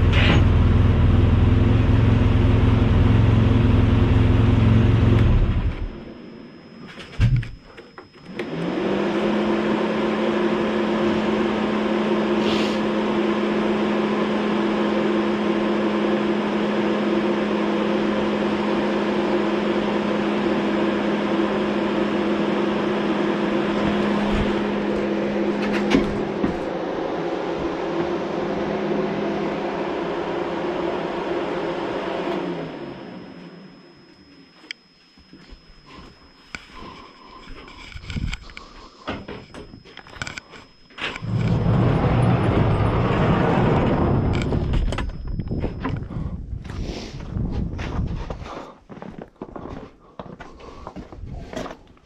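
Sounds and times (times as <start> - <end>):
motor humming: 22.2 - 46.3.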